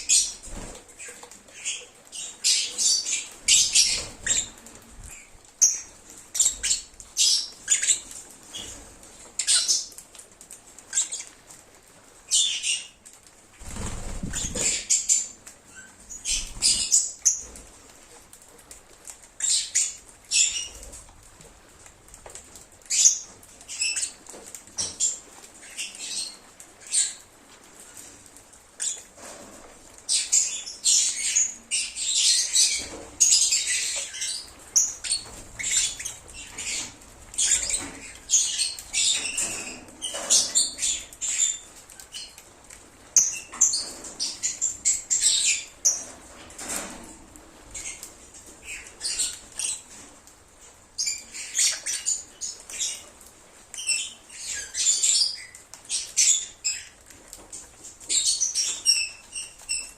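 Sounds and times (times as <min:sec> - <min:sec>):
lovebirds chirping and screeching: 0:00.0 - 0:08.8, 0:10.9 - 0:11.4, 0:13.6 - 0:17.6, 0:28.8 - 0:29.2, 0:30.0 - 0:42.4, 0:43.2 - 0:46.8, 0:47.7 - 0:50.0, 0:51.0 - 0:53.1.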